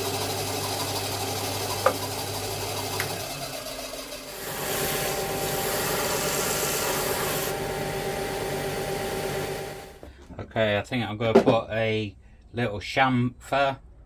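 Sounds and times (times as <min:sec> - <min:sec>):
power tool motor hum: 0:00.6 - 0:10.0
loud rasping on wood: 0:04.3 - 0:07.5.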